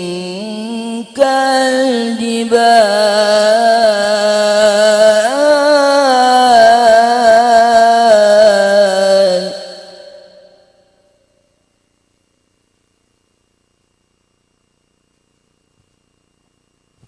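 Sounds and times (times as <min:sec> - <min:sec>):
person reciting melodically: 0:00.0 - 0:10.6.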